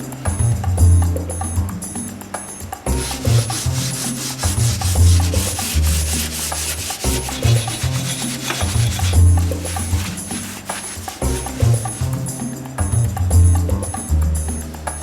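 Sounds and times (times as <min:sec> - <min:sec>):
background music with beat: 0:00.0 - 0:15.0
rubbing strokes on wood: 0:02.9 - 0:12.5.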